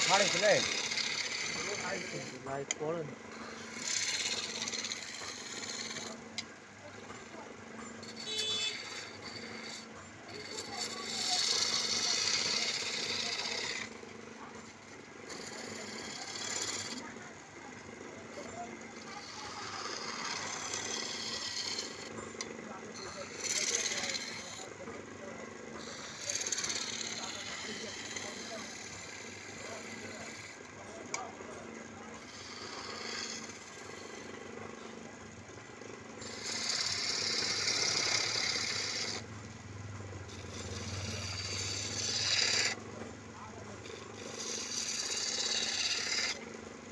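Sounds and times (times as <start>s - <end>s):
chisel cutting spinning wood: 0.0s - 46.9s
wood lathe humming: 0.0s - 46.9s.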